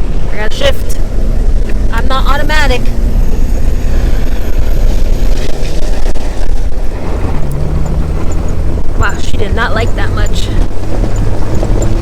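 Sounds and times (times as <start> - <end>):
engine rumbling under load: 0.0 - 12.0
gear shift: 2.8 - 12.0.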